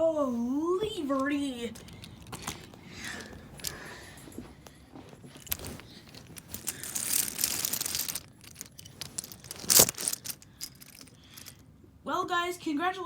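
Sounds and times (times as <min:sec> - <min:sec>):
rustling: 0:01.7 - 0:11.6.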